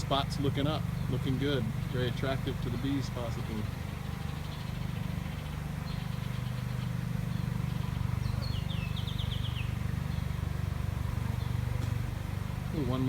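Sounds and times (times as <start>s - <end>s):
bird chirping: 0.0s - 13.0s
bee swarm buzzing: 7.7s - 12.8s.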